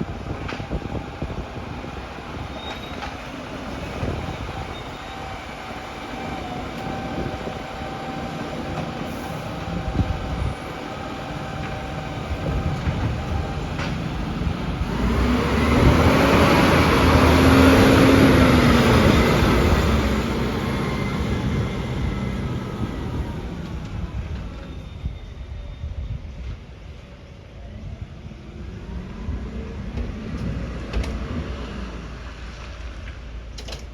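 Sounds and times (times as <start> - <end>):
garbage truck engine rumbling: 0.0 - 25.2.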